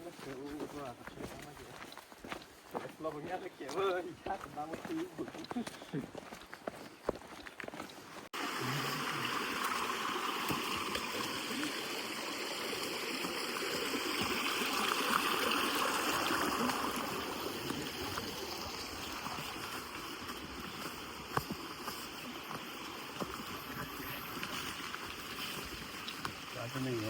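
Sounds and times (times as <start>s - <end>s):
running water rushing: 8.4s - 27.0s.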